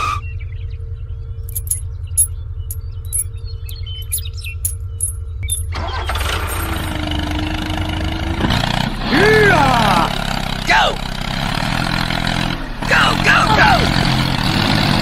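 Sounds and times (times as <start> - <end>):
small engine pulsing: 0.0 - 12.8
fuller mechanical noise: 0.0 - 15.0
sharp metallic clicks and ticks: 1.5 - 5.7.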